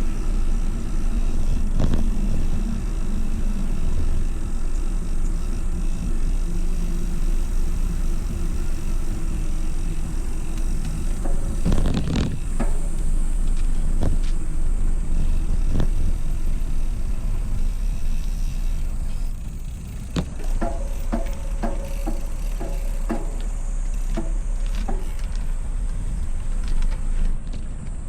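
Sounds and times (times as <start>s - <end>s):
wind rumbling on microphone: 0.0s - 28.0s.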